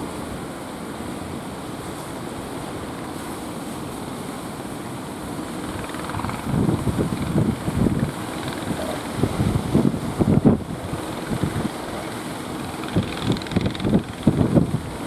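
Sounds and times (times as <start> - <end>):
wind buffeting microphone: 4.5 - 15.0
strong wind rushing: 5.5 - 15.0.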